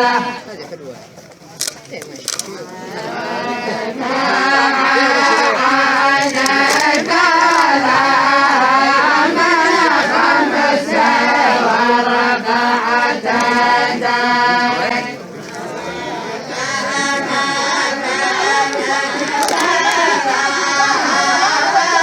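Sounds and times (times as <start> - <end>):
group of voices chanting: 0.0 - 0.5, 2.7 - 22.0.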